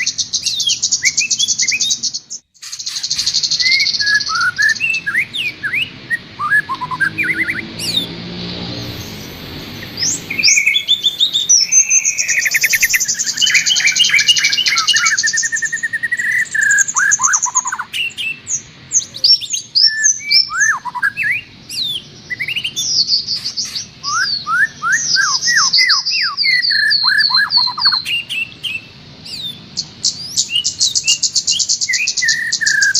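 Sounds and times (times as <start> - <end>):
songbirds singing: 0.0 - 32.9.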